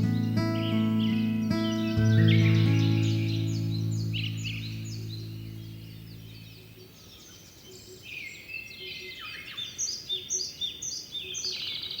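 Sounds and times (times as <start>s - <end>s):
birds chirping and trilling: 0.0s - 12.0s.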